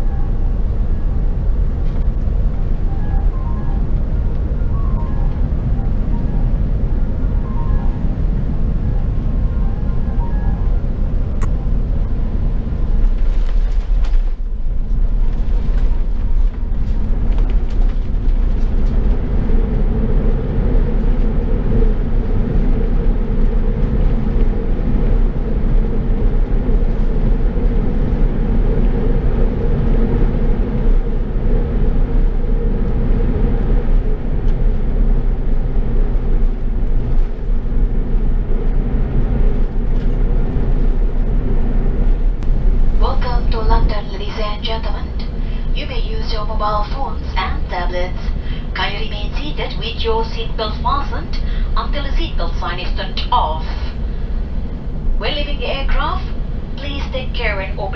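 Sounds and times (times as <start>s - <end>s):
aircraft engine rumble in cabin: 0.0s - 57.9s.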